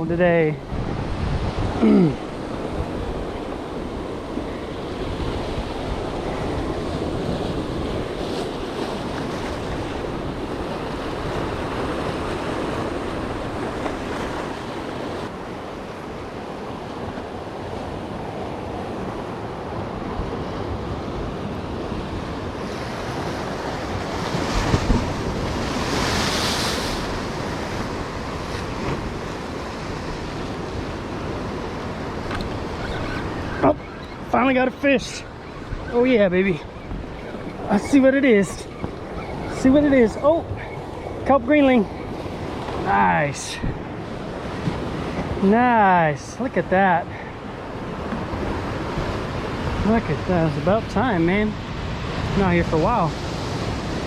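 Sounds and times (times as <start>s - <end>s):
wind buffeting microphone: 0.0s - 45.5s
surf washing against rocks: 0.0s - 54.0s.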